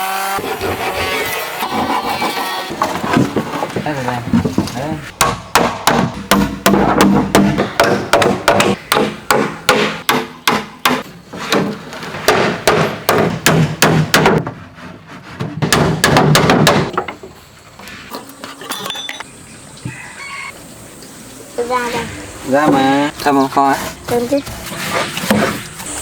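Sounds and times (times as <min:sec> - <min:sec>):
hammer striking wood: 0:05.2 - 0:14.6, 0:15.4 - 0:17.2.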